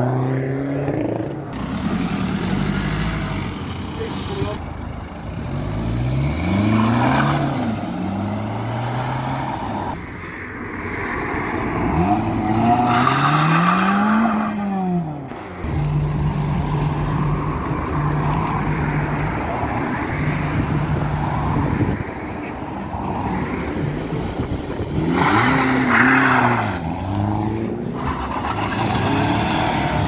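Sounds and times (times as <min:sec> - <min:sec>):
cars accelerating past: 0:05.2 - 0:10.0, 0:11.1 - 0:30.0.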